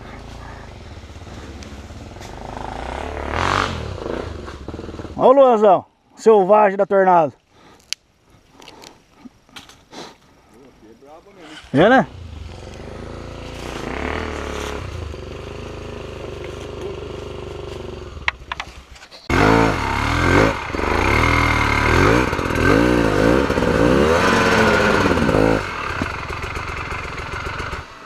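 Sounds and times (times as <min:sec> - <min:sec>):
motorcycle engine revving: 0:00.0 - 0:05.3, 0:11.8 - 0:28.0.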